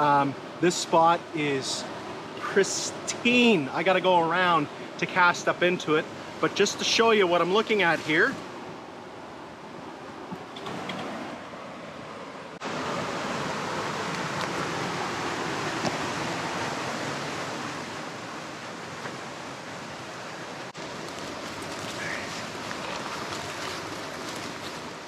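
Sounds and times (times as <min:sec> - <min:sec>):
river rushing through rapids: 0:12.6 - 0:25.0.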